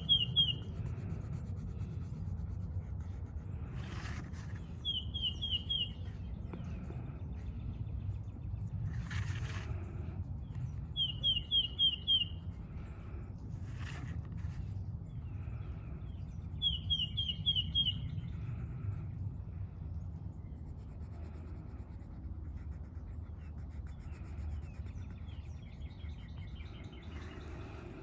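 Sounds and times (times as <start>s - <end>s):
songbird chirping: 0.0s - 0.7s, 4.5s - 9.3s, 10.4s - 12.6s, 15.1s - 18.4s
faint bird calls: 0.0s - 1.4s, 3.7s - 7.8s, 10.4s - 19.0s
coloring scratching on paper: 0.0s - 7.3s, 8.6s - 12.8s, 13.4s - 14.8s, 20.5s - 28.0s
low outdoor rumble: 0.0s - 28.0s.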